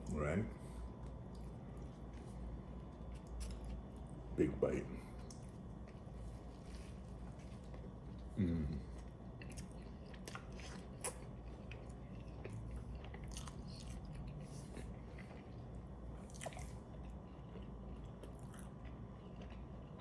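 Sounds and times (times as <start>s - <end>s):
wet chewing: 9.4s - 20.0s.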